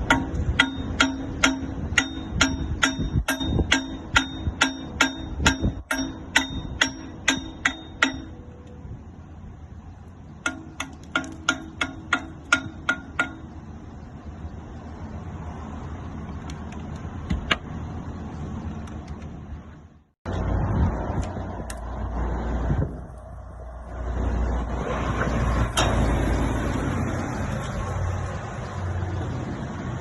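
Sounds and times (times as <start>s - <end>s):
hammer blows ringing on steel: 0.0s - 8.6s, 10.4s - 13.6s.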